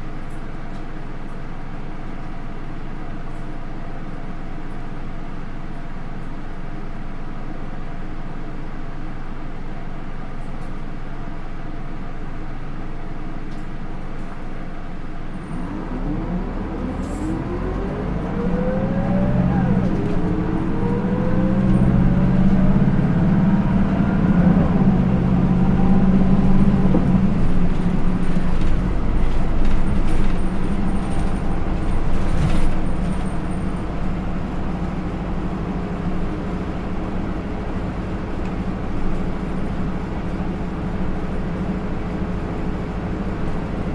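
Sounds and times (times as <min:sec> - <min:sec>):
bus diesel engine accelerating: 0:00.0 - 0:43.9.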